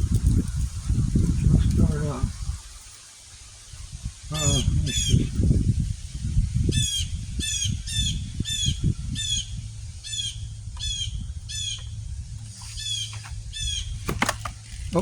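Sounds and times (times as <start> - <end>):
thumps: 14.0 - 15.0.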